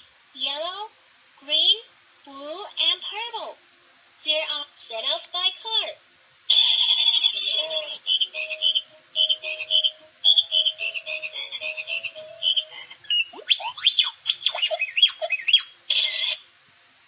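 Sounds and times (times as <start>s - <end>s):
toy phone beeping tune: 6.5s - 13.4s.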